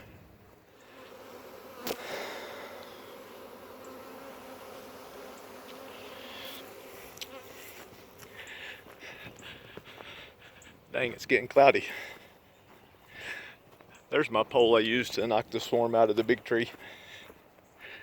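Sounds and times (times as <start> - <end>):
bees buzzing: 0.0 - 10.8.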